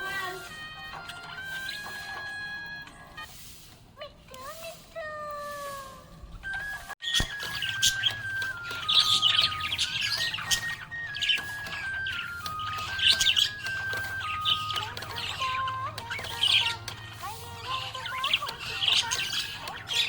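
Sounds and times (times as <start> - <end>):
budgie chirping: 6.5 - 20.0.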